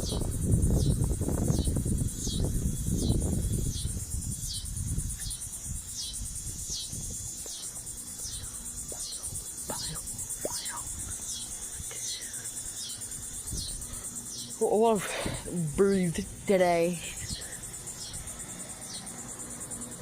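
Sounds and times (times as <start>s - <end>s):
low wind rumble on microphone: 0.0s - 14.1s
crickets chirping: 0.0s - 20.0s.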